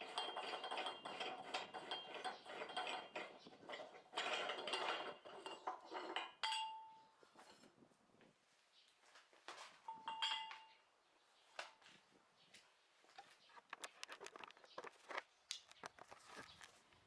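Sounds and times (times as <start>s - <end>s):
metal tools clinking and scraping: 0.0s - 7.7s, 13.1s - 16.8s.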